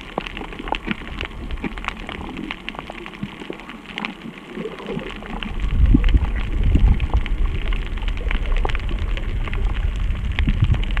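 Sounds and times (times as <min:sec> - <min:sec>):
rain pattering: 0:00.0 - 0:11.0
deep low rumble: 0:05.0 - 0:11.0.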